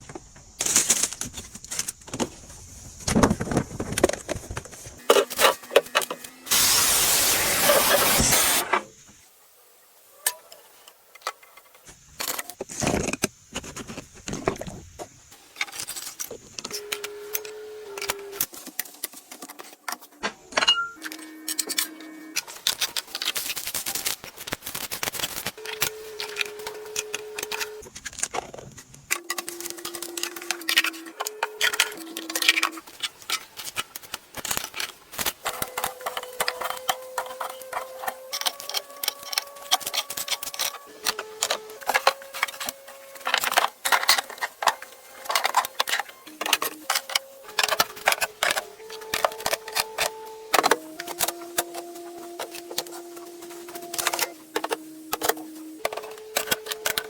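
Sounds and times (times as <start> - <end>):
plastic containers clattering: 0.0 - 6.2, 25.6 - 57.0.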